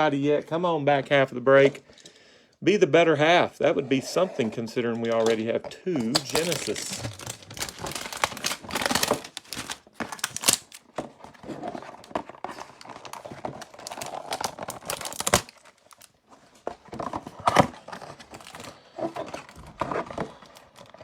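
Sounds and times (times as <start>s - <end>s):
plastic wrapper tearing and crinkling: 6.0s - 16.2s, 17.4s - 21.0s.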